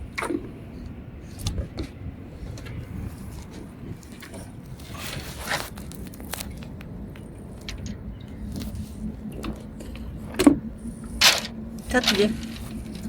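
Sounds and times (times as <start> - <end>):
net rustling: 11.2 - 13.0.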